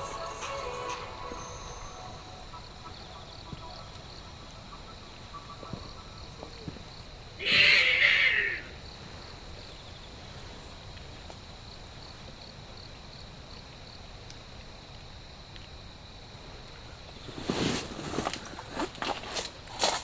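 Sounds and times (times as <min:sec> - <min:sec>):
short animal cry: 0:07.4 - 0:08.8.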